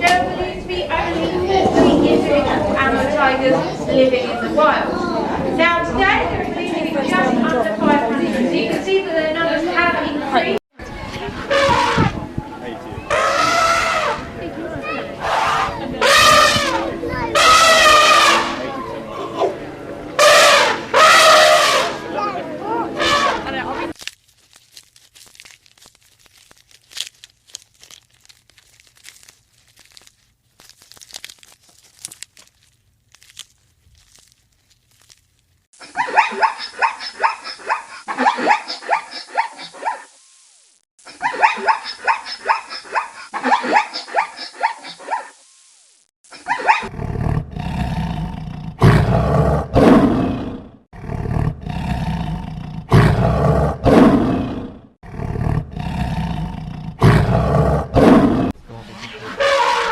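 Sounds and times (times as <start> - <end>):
rapid high animal calls: 13.1 - 14.2, 35.8 - 40.1, 58.9 - 59.9
faint clicks and rustles: 24.0 - 35.7
big cat roaring and growling: 46.8 - 59.9.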